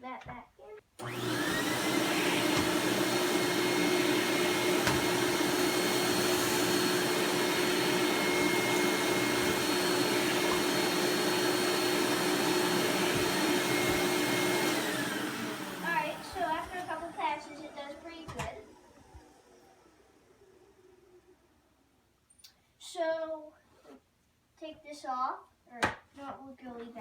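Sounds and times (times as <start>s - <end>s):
vacuum cleaner motor whine: 1.0s - 21.6s.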